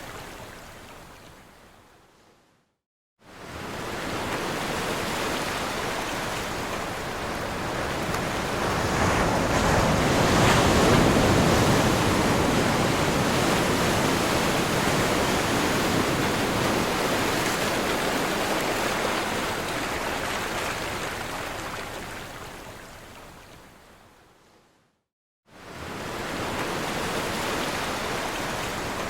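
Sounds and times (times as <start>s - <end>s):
ocean waves breaking: 3.4s - 22.4s, 25.6s - 29.0s.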